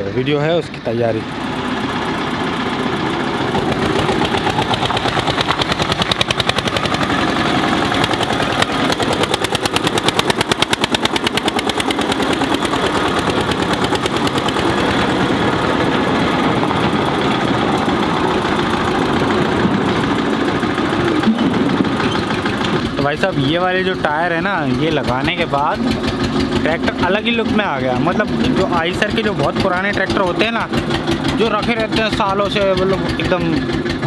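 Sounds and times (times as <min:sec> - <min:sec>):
tractor diesel engine chugging: 0:00.0 - 0:34.0.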